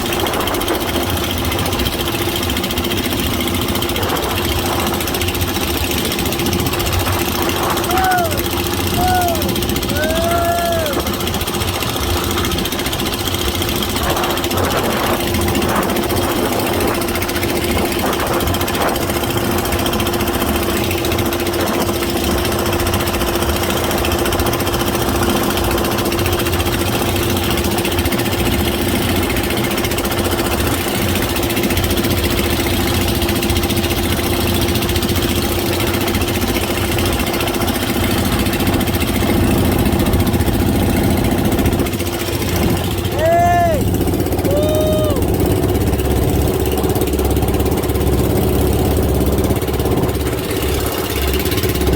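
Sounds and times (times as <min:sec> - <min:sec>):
boat engine humming: 0:00.0 - 0:51.9.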